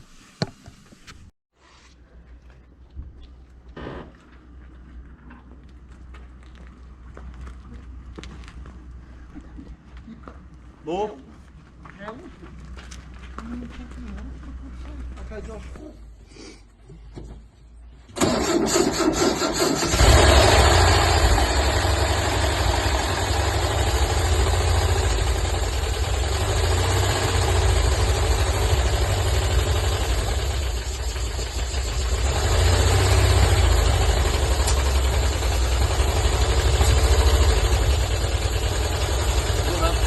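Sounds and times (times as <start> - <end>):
engine cranking and running: 18.1 - 40.0.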